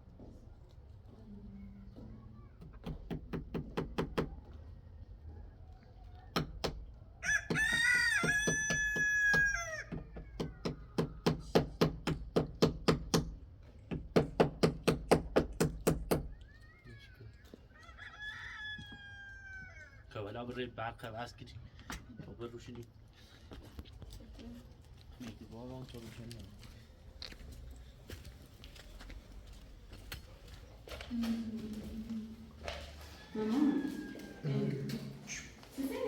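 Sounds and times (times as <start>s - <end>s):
rooster crowing: 7.2s - 10.4s, 17.7s - 20.1s, 32.6s - 35.4s.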